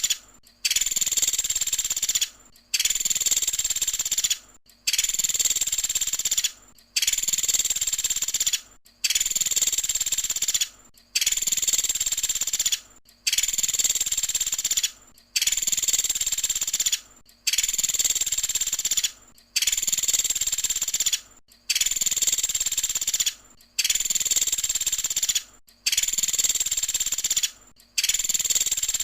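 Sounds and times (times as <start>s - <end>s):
woodpecker rattling trill: 0.0s - 29.0s.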